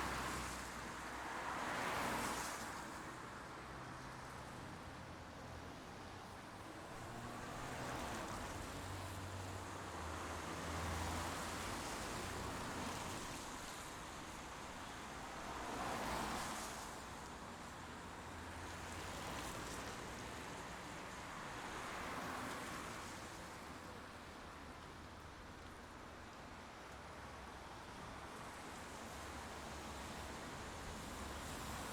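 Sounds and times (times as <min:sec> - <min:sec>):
steady rain: 0:14.1 - 0:23.2.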